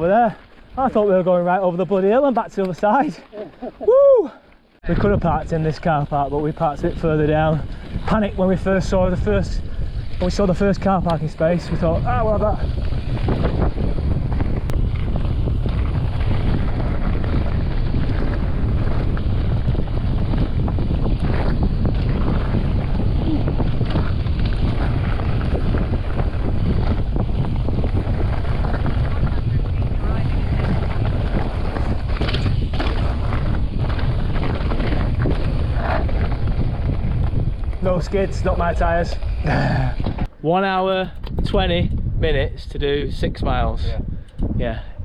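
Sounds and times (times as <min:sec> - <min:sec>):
bike tyre noise: 0:00.0 - 0:42.2
wind buffeting microphone: 0:04.8 - 0:45.0
bike clattering: 0:06.1 - 0:39.4.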